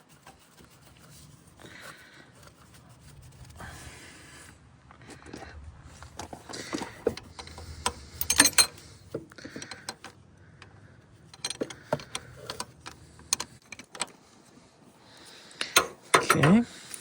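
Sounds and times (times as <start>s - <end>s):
metallic tool clicks and clinks: 7.1s - 8.9s.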